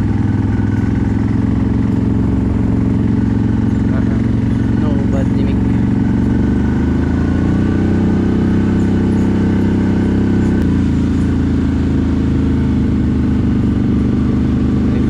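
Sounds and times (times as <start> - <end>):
atv engine running at low speed: 0.0 - 15.0.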